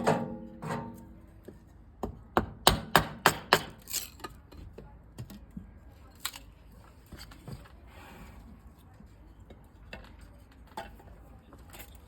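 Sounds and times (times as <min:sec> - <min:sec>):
metal stove parts knocking: 0:00.0 - 0:01.0.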